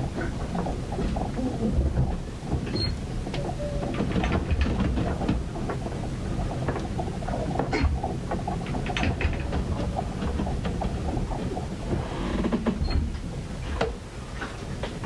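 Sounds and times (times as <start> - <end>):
irregular knocks and clicks: 6.6 - 13.2.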